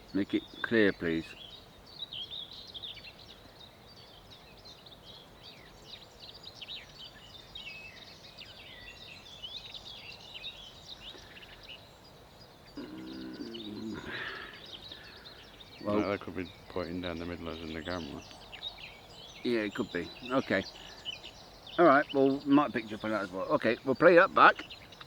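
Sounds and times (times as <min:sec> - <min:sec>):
birds chirping and trilling: 0:00.0 - 0:25.0
low voice: 0:12.8 - 0:14.4.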